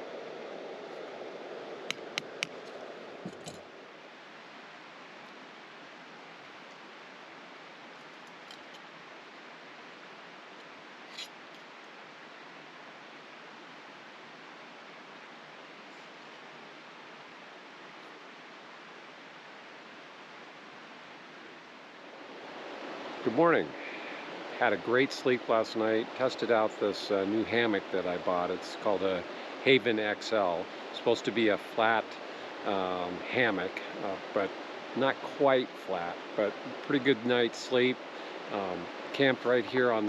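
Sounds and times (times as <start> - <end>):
creek water rushing: 0.0 - 40.0
sharp clicks: 1.9 - 2.6.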